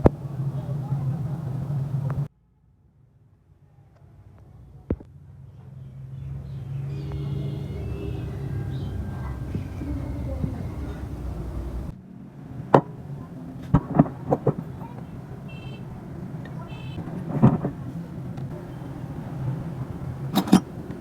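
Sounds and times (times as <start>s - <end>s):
high ringing tones: 7.0s - 11.9s
metal knocks and clicks: 20.2s - 21.0s.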